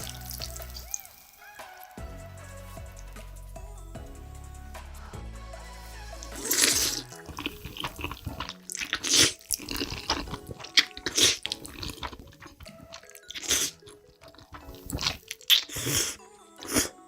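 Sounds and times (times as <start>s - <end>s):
wet slurping of noodles: 6.1s - 17.0s
chewing: 6.2s - 17.0s.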